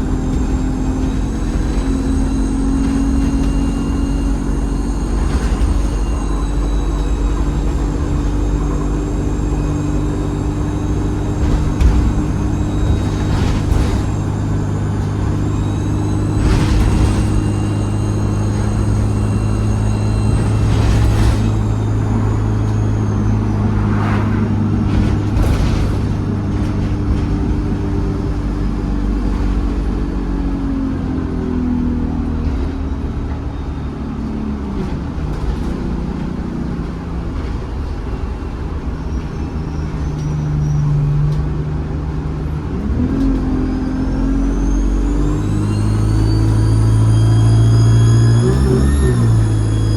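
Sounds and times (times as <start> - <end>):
knocks and rattles from bus body: 0.0 - 23.8, 24.5 - 49.9
high turbo whistle: 0.0 - 25.6, 43.1 - 49.9
bus diesel engine running: 0.0 - 49.9.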